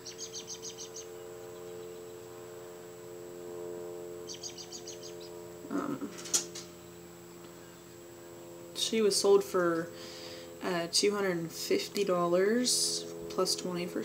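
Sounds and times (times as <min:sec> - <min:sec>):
small bird chirping trill: 0:00.0 - 0:03.2, 0:04.2 - 0:06.1, 0:06.7 - 0:08.4
steady low hum: 0:00.0 - 0:14.0.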